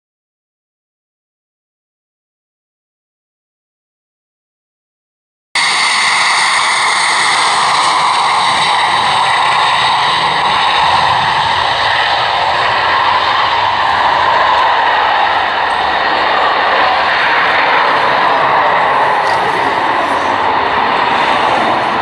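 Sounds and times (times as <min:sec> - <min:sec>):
high whine: 0:05.6 - 0:22.0
jet engine noise: 0:05.6 - 0:22.0.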